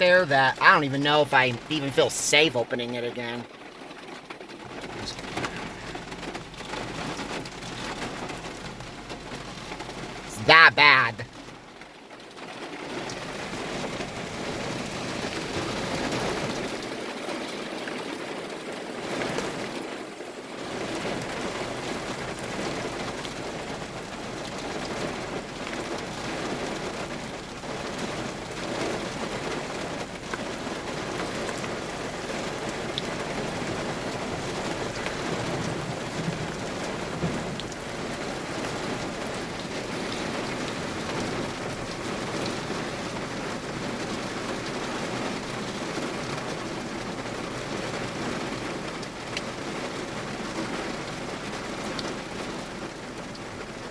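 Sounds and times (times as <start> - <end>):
heavy rain downpour: 0.0 - 53.9.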